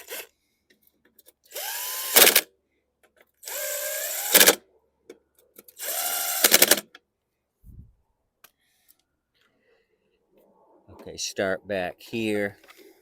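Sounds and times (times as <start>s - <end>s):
impact driver whine and hammering: 1.6s - 2.5s, 3.5s - 4.6s, 5.8s - 6.8s.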